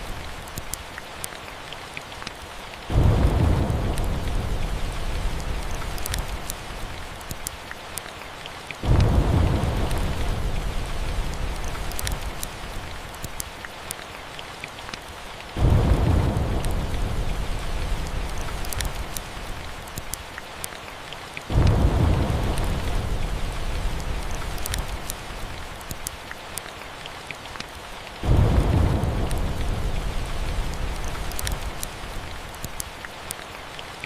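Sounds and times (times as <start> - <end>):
steady rain: 0.0 - 34.0
thunder rumbling: 2.9 - 7.1, 8.8 - 13.1, 15.6 - 19.9, 21.5 - 25.7, 28.2 - 32.5.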